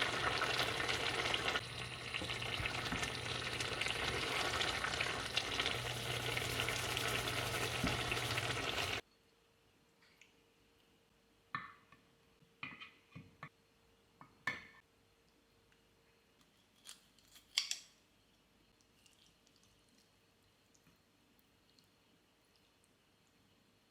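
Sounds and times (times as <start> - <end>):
food sizzling in a pan: 0.0 - 9.0.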